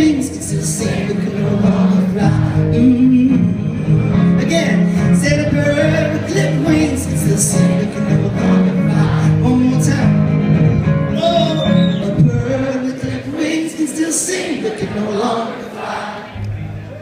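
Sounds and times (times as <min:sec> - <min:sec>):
person singing: 0:00.0 - 0:10.1
guitar: 0:00.0 - 0:13.6, 0:16.3 - 0:17.0.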